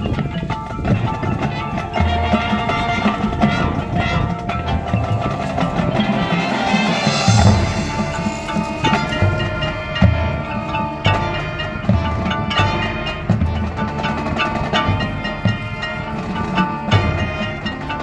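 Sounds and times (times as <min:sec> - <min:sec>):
low drum hits: 0:00.0 - 0:17.6
marching band playing: 0:00.0 - 0:18.0.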